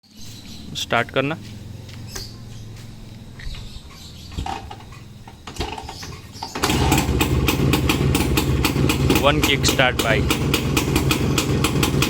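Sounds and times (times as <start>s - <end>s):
two-stroke motorcycle engine popping: 4.4s - 12.0s.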